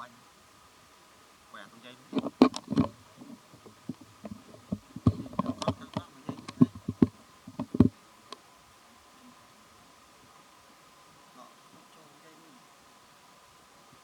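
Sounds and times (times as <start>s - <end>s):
high buzzing hum: 2.1s - 7.9s
sharp clicks and knocks: 2.1s - 7.9s.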